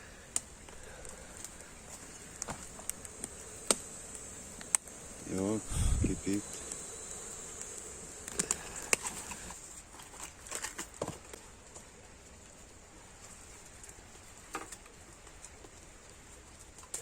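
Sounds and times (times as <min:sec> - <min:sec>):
insects buzzing: 0:00.0 - 0:09.7.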